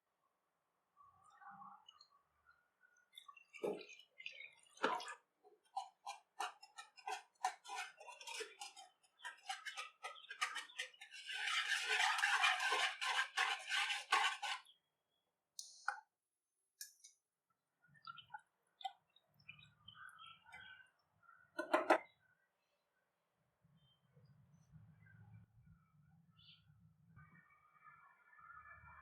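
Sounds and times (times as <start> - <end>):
kitchen utensil strokes: 5.8 - 14.7.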